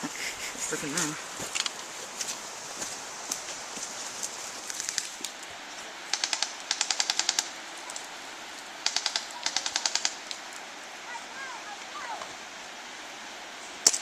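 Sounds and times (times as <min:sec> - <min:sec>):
airsoft gun bursts: 0:06.1 - 0:07.5, 0:08.8 - 0:10.2.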